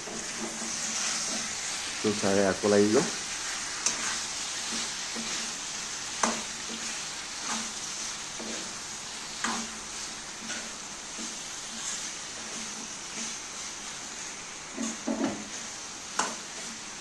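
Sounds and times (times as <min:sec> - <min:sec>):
chicken sizzling in a pan: 0:00.0 - 0:17.0.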